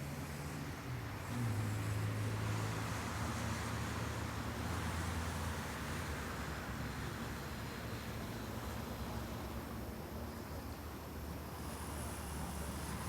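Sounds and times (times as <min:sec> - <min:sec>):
hiss of wind or water: 0:00.0 - 0:13.0.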